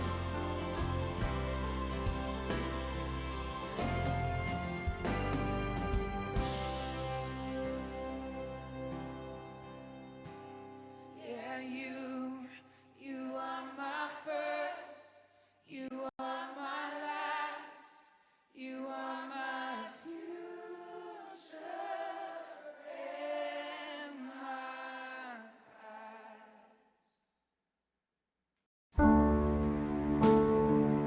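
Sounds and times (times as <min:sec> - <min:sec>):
voices singing worship song: 0:00.0 - 0:06.6, 0:11.2 - 0:26.8
low sustained accompaniment: 0:00.0 - 0:10.3, 0:29.0 - 0:31.0.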